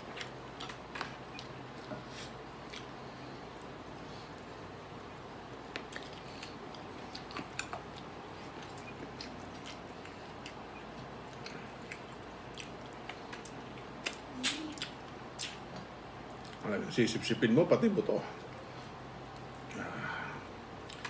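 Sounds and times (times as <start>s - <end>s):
man chewing food: 0.0s - 16.6s, 18.3s - 21.0s
mouth clicks and smacks: 10.4s - 16.6s.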